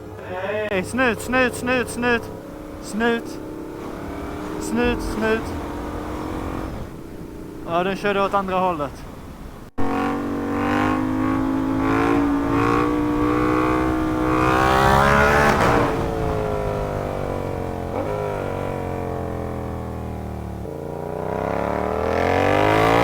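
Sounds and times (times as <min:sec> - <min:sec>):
motorcycle engine pulling: 0:00.7 - 0:23.0.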